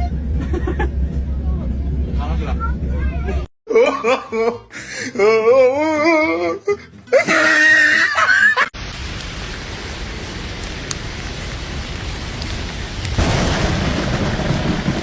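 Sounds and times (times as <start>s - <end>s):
high-pitched voice-like cry: 5.1s - 8.7s
heavy rain: 8.8s - 15.0s
low thunder rumble: 12.8s - 15.0s.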